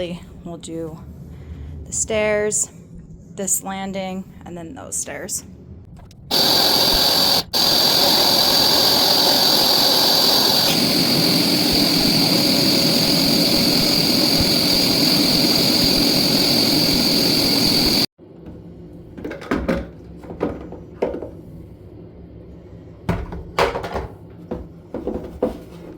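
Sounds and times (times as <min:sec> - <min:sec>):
carpet cleaner suction motor: 0:06.3 - 0:18.1.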